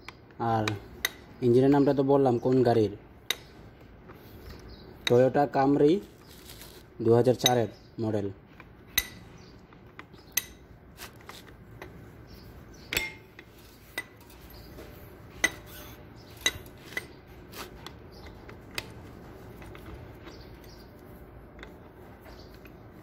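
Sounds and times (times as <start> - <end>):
wrench clinking on metal bolts: 12.9 - 14.7, 15.4 - 17.2.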